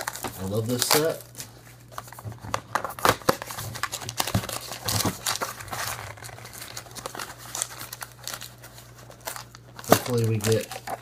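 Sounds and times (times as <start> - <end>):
plastic wrapping crinkling and tearing: 0.0 - 11.0.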